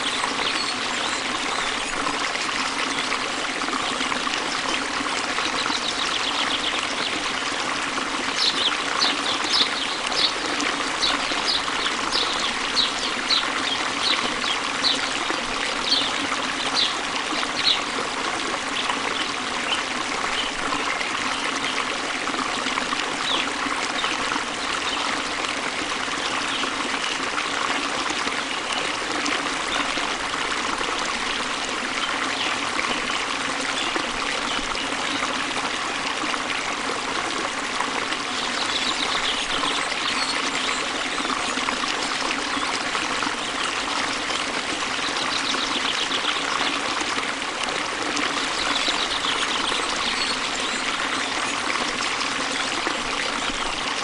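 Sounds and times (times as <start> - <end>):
water trickling: 0.0 - 54.0.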